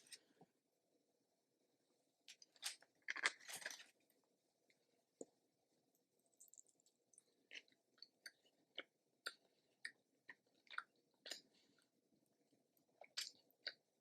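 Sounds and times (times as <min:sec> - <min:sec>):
person chewing food: 0:06.2 - 0:12.0, 0:12.8 - 0:14.0.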